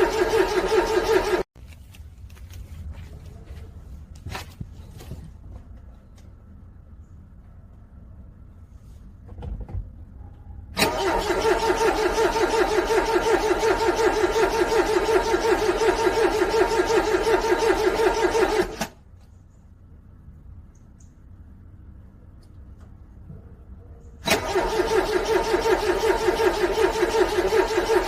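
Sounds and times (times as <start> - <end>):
car engine cranking: 0.0 - 1.5, 10.8 - 19.0, 24.2 - 28.0.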